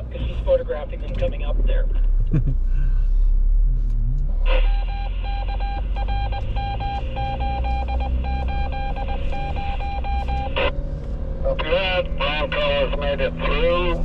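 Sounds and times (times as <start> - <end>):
engine idling: 0.0 - 14.0
electronic warning chime beeping: 4.6 - 10.7.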